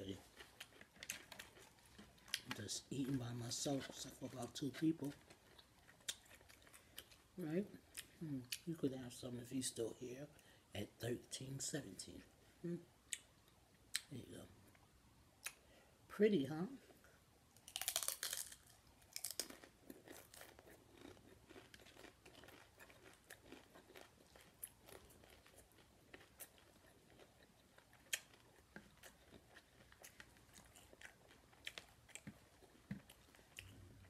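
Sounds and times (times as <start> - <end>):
chewing crunchy taco shells: 0.0 - 9.2, 17.6 - 34.0.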